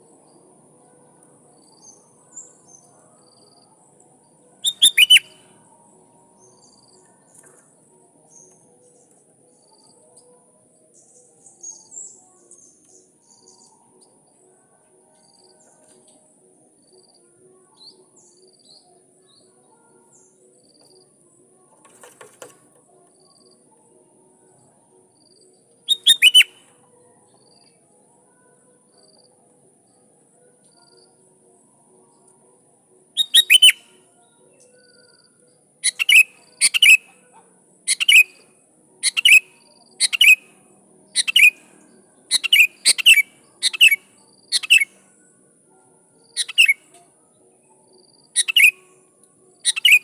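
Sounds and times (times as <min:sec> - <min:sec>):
birds chirping and whistling: 0:04.6 - 0:05.5, 0:25.9 - 0:26.8, 0:33.2 - 0:33.9, 0:35.8 - 0:37.1, 0:37.9 - 0:38.4, 0:39.0 - 0:40.5, 0:41.2 - 0:41.6, 0:42.3 - 0:44.9, 0:46.4 - 0:46.8, 0:48.4 - 0:48.8, 0:49.6 - 0:50.0.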